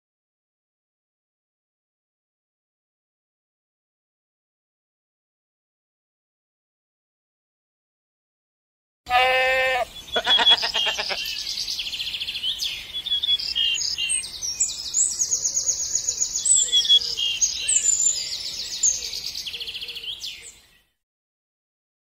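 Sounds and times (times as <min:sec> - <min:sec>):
quavering bleat: 0:09.1 - 0:11.4
birds chirping and singing: 0:09.1 - 0:21.0.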